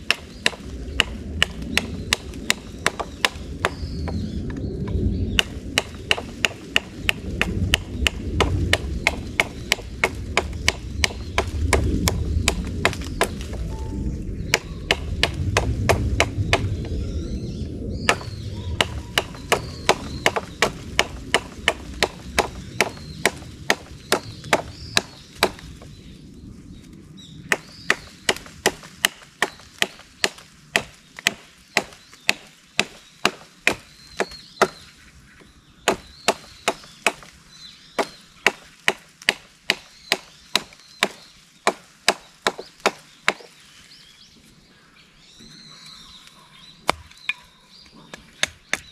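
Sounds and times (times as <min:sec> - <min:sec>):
hatchet chopping wood: 0:00.0 - 0:04.2, 0:05.3 - 0:13.6, 0:14.5 - 0:16.9, 0:18.1 - 0:25.7, 0:27.5 - 0:34.9, 0:35.8 - 0:37.4, 0:38.0 - 0:43.6, 0:46.8 - 0:47.4, 0:48.1 - 0:48.9.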